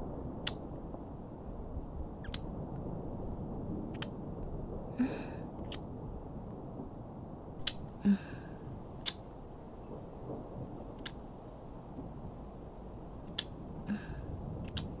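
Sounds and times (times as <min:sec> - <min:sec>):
low rain ambience: 0:00.0 - 0:15.0
kissing lip smacks: 0:02.2 - 0:02.5, 0:07.6 - 0:07.9, 0:09.0 - 0:09.2, 0:13.3 - 0:13.5
soft long kisses: 0:07.6 - 0:08.3, 0:09.0 - 0:09.2, 0:13.3 - 0:14.1.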